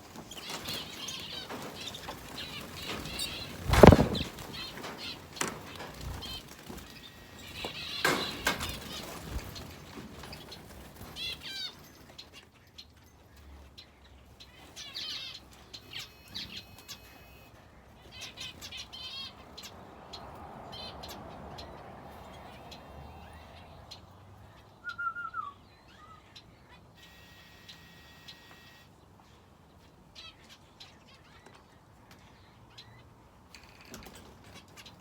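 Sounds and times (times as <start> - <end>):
wings fluttering: 0.0 - 12.2
small clicks from birds moving: 0.0 - 12.3
birds chirping: 0.0 - 35.0
bird falling call: 3.1 - 4.7.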